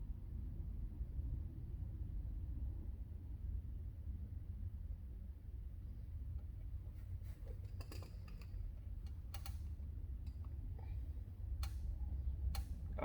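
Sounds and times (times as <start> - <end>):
metal parts and tools clicking: 7.5 - 10.6.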